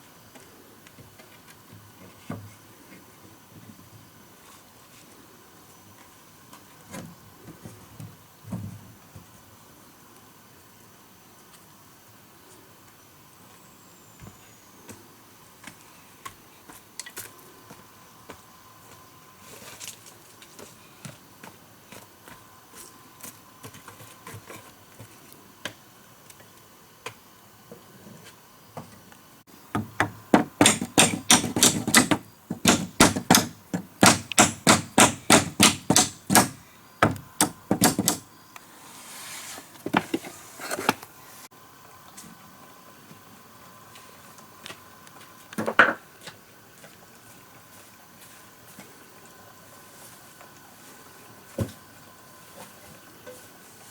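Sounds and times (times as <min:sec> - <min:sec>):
tool striking timber: 0:29.8 - 0:38.2.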